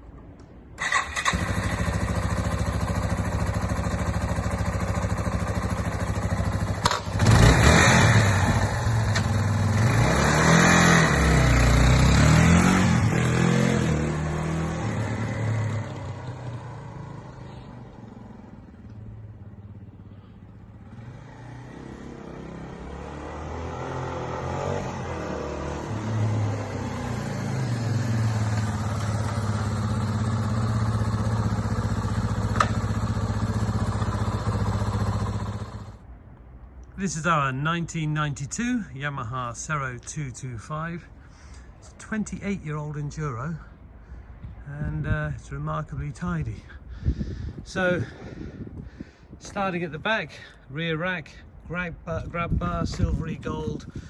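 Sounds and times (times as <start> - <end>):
motorcycle engine starting: 0.8 - 36.0
motorcycle engine idling and revving: 0.8 - 36.4, 46.5 - 50.6, 51.2 - 54.0.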